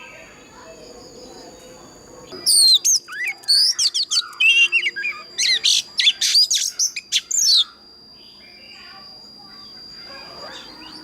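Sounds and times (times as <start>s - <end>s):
bird singing whistled song: 2.3s - 11.0s.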